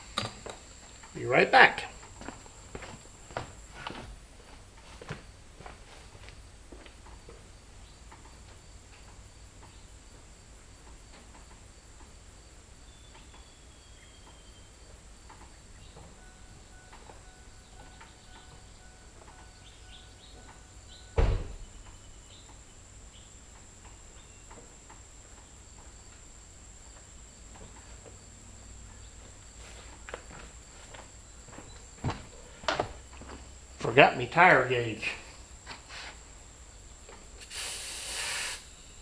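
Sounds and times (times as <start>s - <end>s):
high insect drone: 0.0s - 39.0s
sharp loud thump: 21.2s - 21.7s.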